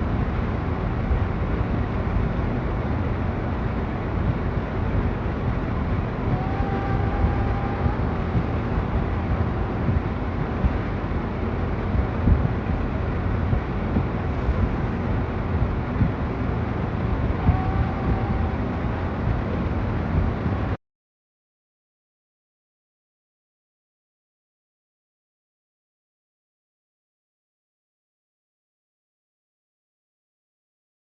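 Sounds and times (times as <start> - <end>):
low rumble and hiss: 0.0 - 20.8.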